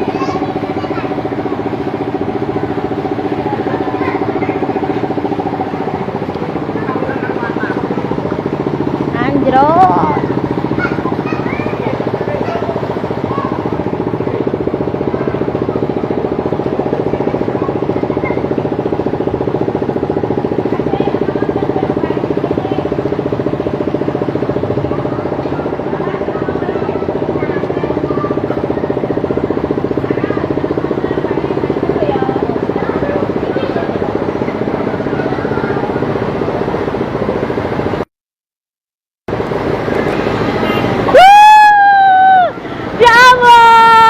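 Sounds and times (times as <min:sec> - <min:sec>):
engine running steadily: 0:00.0 - 0:38.1, 0:39.2 - 0:44.0.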